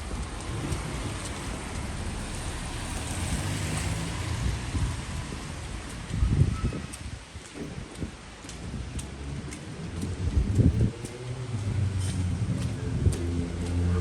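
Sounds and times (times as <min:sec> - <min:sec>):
vehicle tyres hissing on wet road: 0:00.0 - 0:07.9
steady rain on street: 0:00.0 - 0:14.0.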